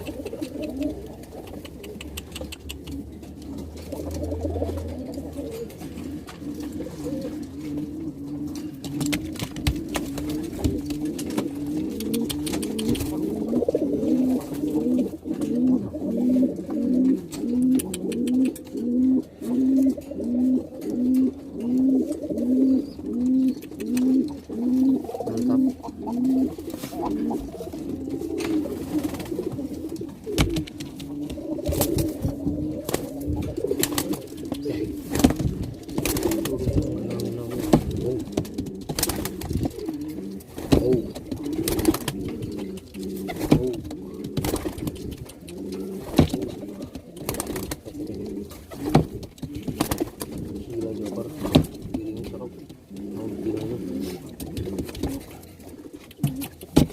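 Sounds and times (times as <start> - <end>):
sharp taps and clicks: 0.0 - 3.5, 8.8 - 13.2, 23.5 - 24.4, 30.0 - 32.0, 40.7 - 50.1, 56.0 - 56.9
pigeon cooing: 0.0 - 56.9.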